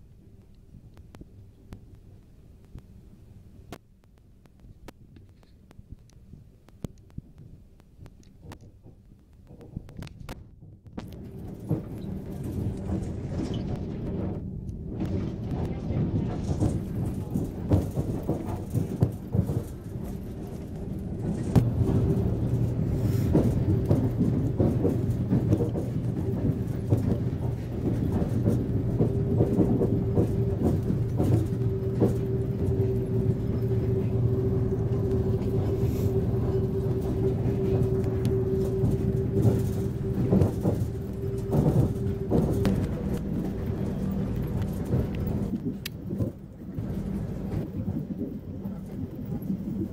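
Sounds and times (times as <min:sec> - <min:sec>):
train low drone: 0:07.2 - 0:49.9
steady tone: 0:28.8 - 0:47.3.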